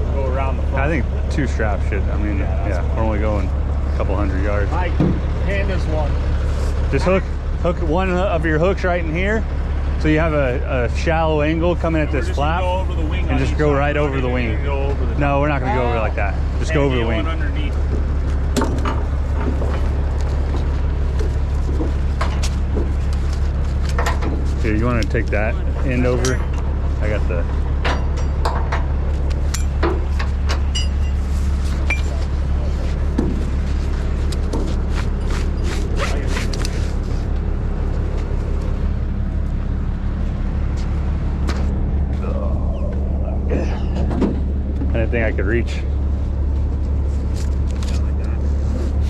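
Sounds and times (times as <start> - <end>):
diesel engine idling: 0.0 - 49.0
sharp clicks and rattles: 17.8 - 31.2.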